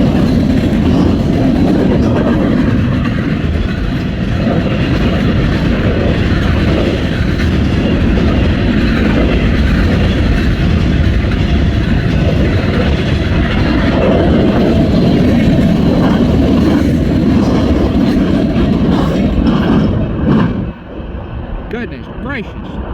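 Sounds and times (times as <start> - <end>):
freight train wheels rumbling: 0.0 - 22.9.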